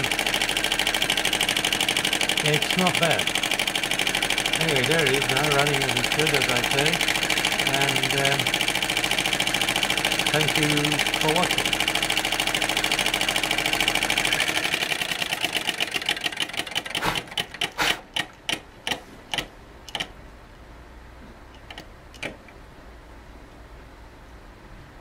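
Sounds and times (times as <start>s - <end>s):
model engine clattering: 0.0s - 18.6s.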